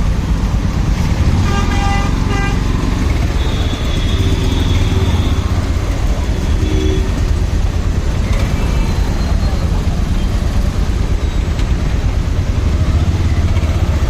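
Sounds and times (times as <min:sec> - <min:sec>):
motorcycle engine: 0:00.0 - 0:14.0
road and wind noise: 0:00.0 - 0:14.0
vehicle horns honking: 0:01.2 - 0:07.3.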